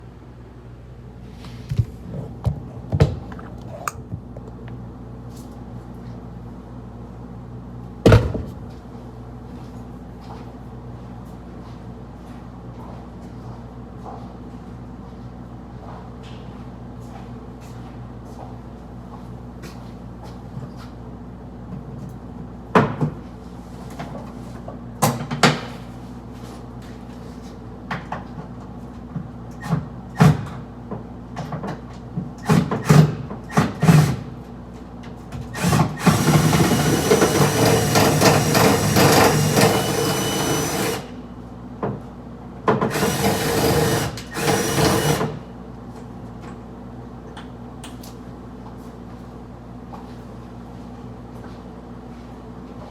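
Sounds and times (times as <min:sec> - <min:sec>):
power drill running: 0:35.6 - 0:41.1, 0:42.9 - 0:45.4.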